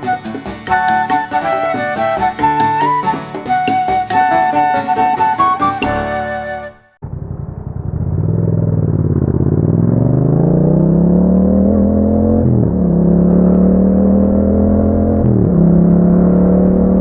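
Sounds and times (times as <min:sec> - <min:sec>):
motorcycle engine accelerating: 0:07.0 - 0:17.0.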